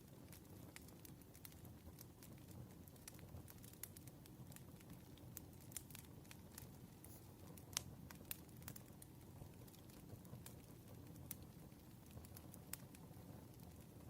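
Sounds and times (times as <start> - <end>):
burning wood crackling and popping: 0.0 - 14.0
low rumble of flames: 0.0 - 14.0.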